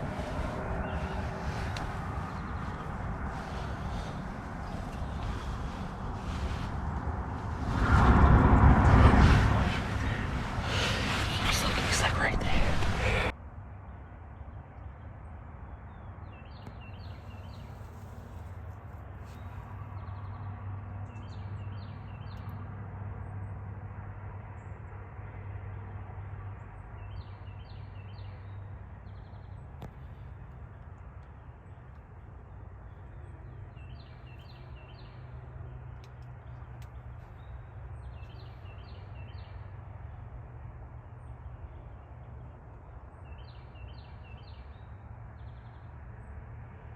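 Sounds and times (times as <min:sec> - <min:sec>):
steady low hum: 0:00.0 - 0:13.3.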